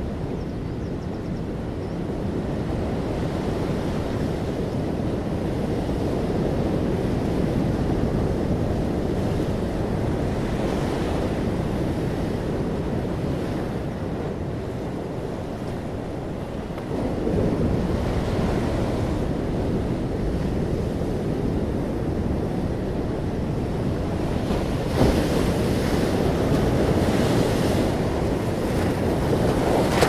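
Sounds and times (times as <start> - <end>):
sea waves washing onto beach: 22.7 - 30.0.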